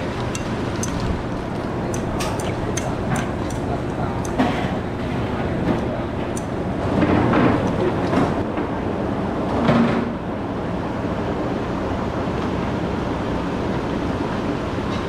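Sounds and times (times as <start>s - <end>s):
steady rumbling: 0.0s - 8.6s.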